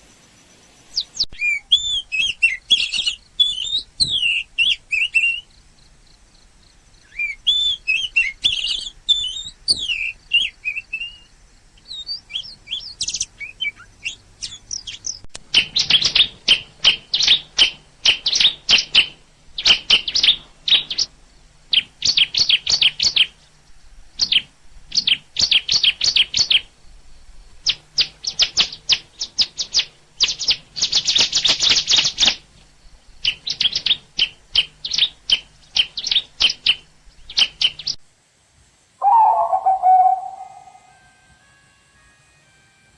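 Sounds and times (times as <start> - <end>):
warbling bird whistles: 0.9 - 5.5, 7.0 - 21.1, 39.0 - 42.0.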